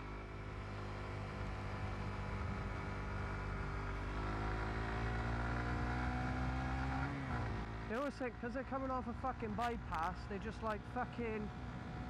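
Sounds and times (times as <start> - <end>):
motorcycle engine accelerating: 0.0 - 8.4.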